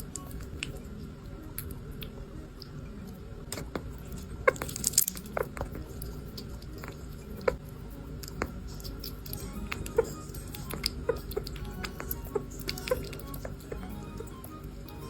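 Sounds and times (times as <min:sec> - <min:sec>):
pet crunching a snack: 0:03.5 - 0:15.0.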